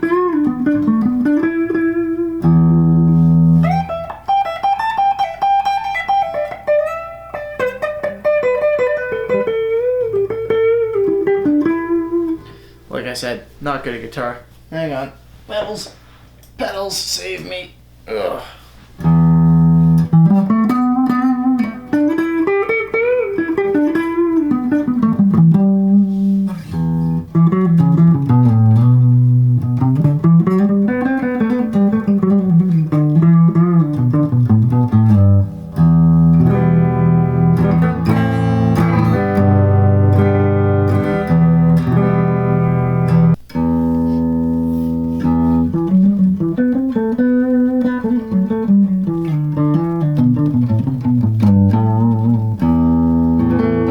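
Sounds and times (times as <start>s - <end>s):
electric guitar with effects: 0.0s - 12.9s, 19.0s - 53.9s.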